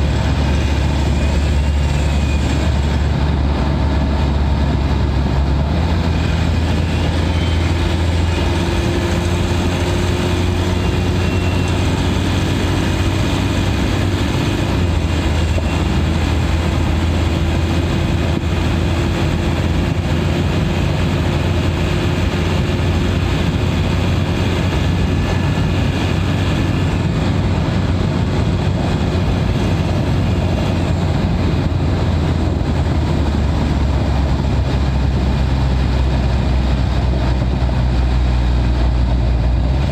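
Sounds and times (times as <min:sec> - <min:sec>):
diesel engine drone: 0:00.0 - 0:39.9
faint high turbo whistle: 0:00.6 - 0:03.0, 0:10.1 - 0:12.2.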